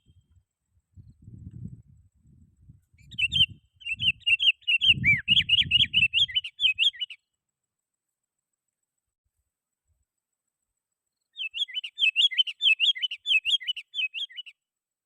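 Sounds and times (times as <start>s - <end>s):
bird singing whistled notes: 2.8s - 7.2s, 11.2s - 14.6s.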